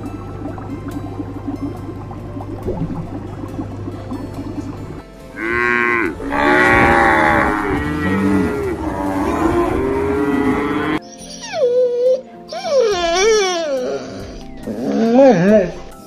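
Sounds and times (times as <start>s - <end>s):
cows mooing: 5.3s - 11.0s
dog whining: 11.0s - 15.8s.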